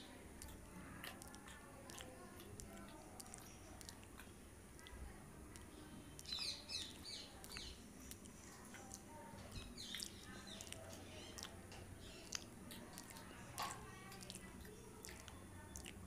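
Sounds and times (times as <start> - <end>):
faint chewing and mouth clicks: 0.0 - 16.0
small bird chirping: 6.0 - 13.4.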